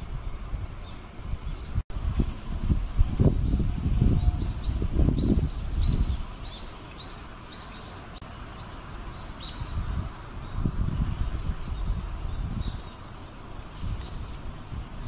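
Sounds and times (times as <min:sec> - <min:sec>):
small bird chirping: 0:03.4 - 0:13.1.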